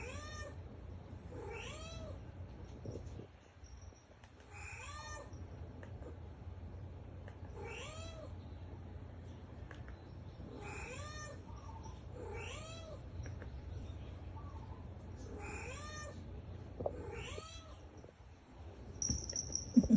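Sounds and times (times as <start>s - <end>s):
steady low hum: 0.0s - 19.9s
cat meowing: 1.4s - 2.2s, 7.6s - 8.3s, 10.6s - 11.4s.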